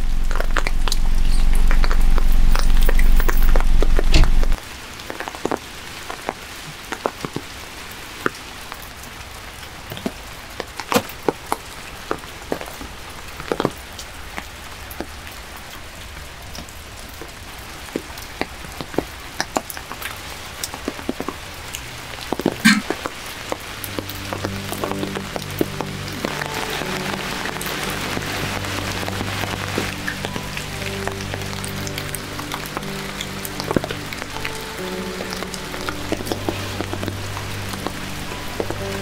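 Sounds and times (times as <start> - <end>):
loud low hum: 0.0 - 4.6
soft rain patter: 0.0 - 39.0.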